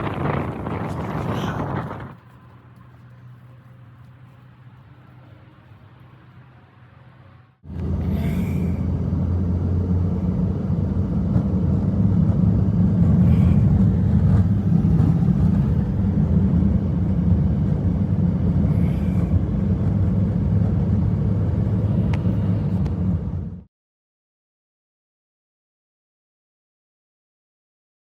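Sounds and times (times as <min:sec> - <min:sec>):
hissing wind gusts: 0:00.0 - 0:02.8, 0:07.7 - 0:23.5
blizzard wind rumbling: 0:00.0 - 0:06.8, 0:07.6 - 0:23.7.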